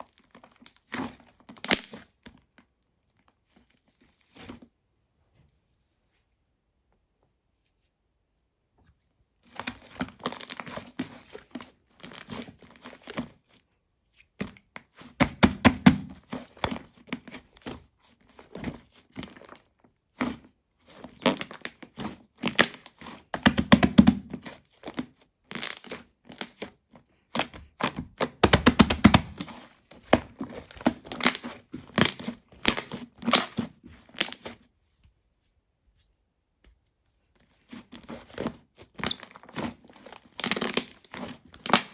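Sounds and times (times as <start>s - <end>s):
slime squished crackling and popping: 27.4s - 29.5s, 30.1s - 34.4s, 39.0s - 41.9s.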